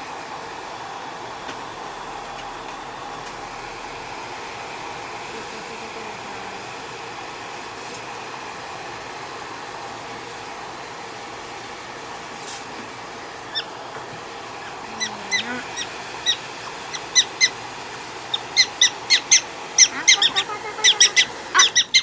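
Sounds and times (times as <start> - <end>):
hair dryer blowing: 0.0 - 22.0
prairie dog chirping calls: 13.4 - 13.8, 14.4 - 22.0.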